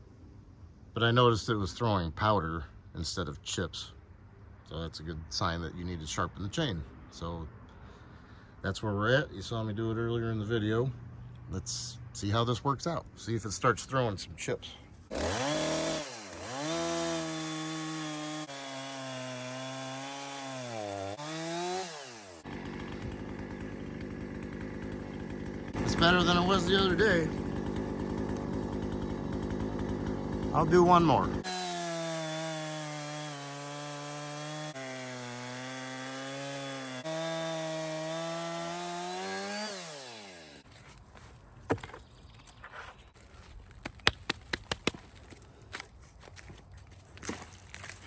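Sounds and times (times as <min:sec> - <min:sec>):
chainsaw cutting into log: 0:15.1 - 0:40.6.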